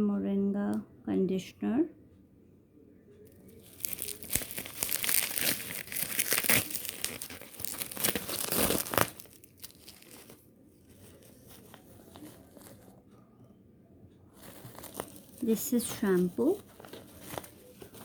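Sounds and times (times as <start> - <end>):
packaging crinkling and rustling: 3.3 - 13.0, 14.4 - 18.0.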